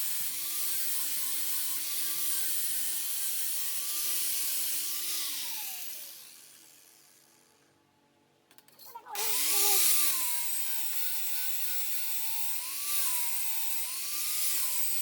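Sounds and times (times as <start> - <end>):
angle grinder grinding steel: 9.2 - 15.0.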